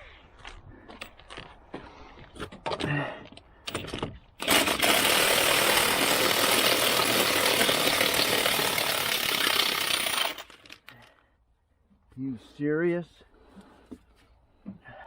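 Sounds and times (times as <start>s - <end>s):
impact wrench rattling: 3.7s - 11.1s.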